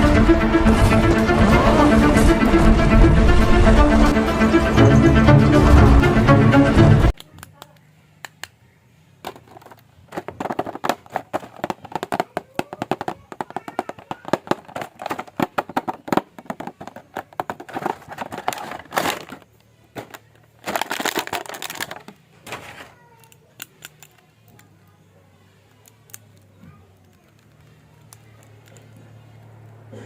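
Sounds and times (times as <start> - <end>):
plastic packaging crinkling: 9.2 - 24.7.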